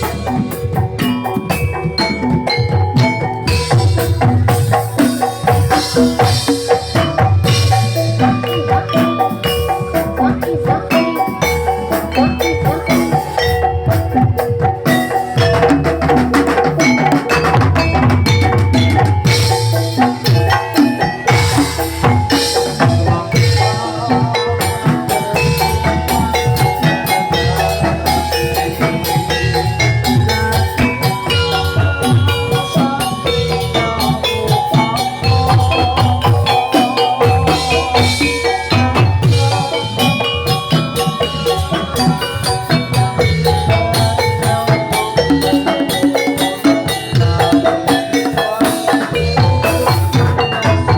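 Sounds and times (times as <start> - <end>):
drum strokes: 0.0 - 50.9
gamelan music: 0.0 - 50.9
metallophones ringing melody: 0.0 - 50.9.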